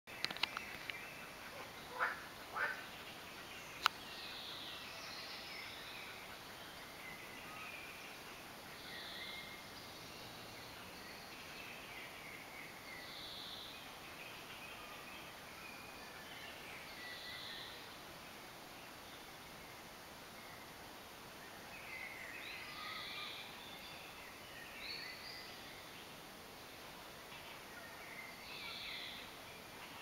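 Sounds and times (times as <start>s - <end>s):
distant bird calls: 0.1s - 8.4s
faint outdoor background noise: 0.1s - 30.0s.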